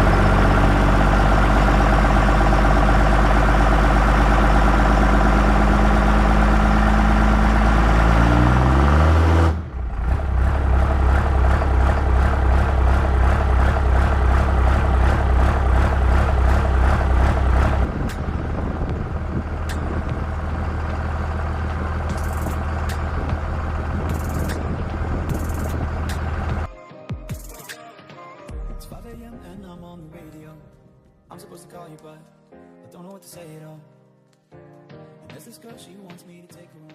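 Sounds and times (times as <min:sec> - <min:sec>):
diesel engine running: 0:00.0 - 0:26.7.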